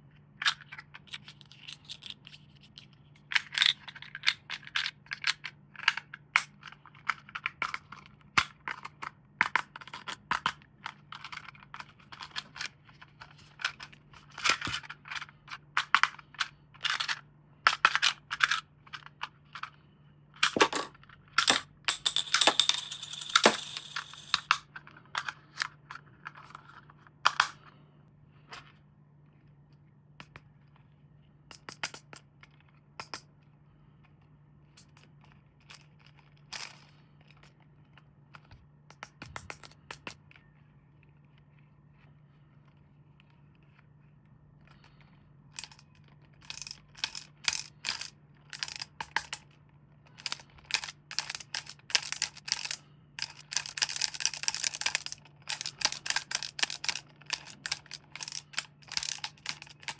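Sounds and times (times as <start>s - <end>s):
packaging clicks and rustles: 50.1s - 59.9s.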